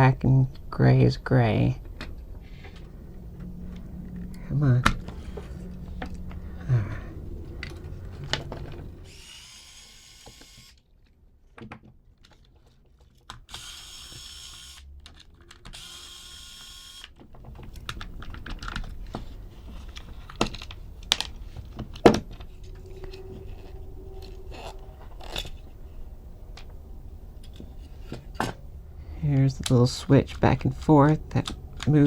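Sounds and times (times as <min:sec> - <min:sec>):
electric screwdriver whirring: 0:09.0 - 0:10.8, 0:13.5 - 0:14.9, 0:15.6 - 0:17.2
plastic parts clicking: 0:11.6 - 0:15.9, 0:17.1 - 0:22.5.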